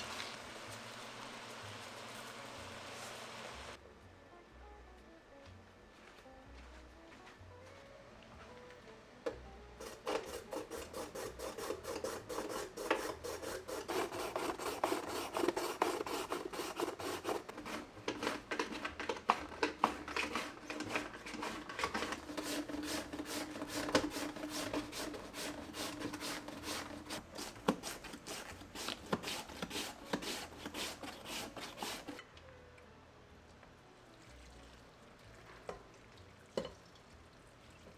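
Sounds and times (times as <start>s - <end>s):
blade scraping raw potato: 9.8s - 32.2s.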